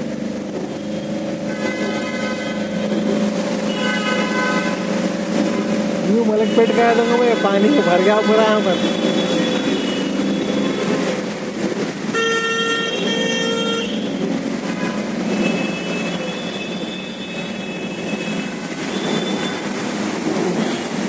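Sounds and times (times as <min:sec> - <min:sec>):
street traffic noise: 0:00.0 - 0:21.0
vehicle horn honking: 0:01.5 - 0:02.7, 0:03.7 - 0:04.8, 0:06.4 - 0:11.0, 0:12.1 - 0:14.1.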